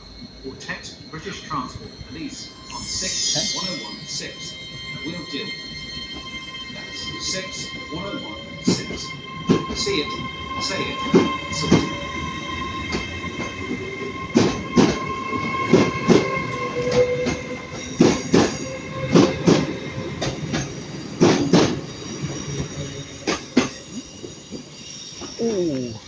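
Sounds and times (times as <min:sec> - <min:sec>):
steady high whine: 0:00.0 - 0:25.3
train wheels knocking over rail joints: 0:18.0 - 0:21.8.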